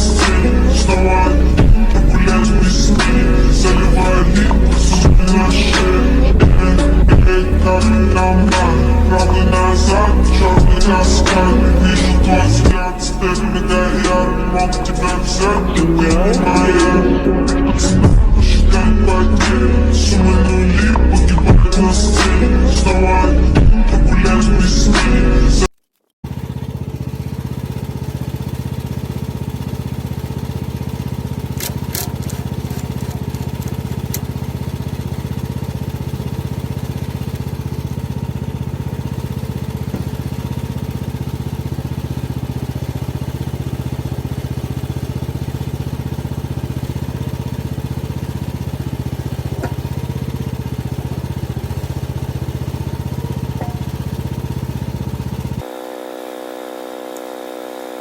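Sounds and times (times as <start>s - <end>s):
mini excavator engine running: 0.0s - 25.6s, 26.2s - 58.0s
sharp clicks: 31.5s - 34.3s.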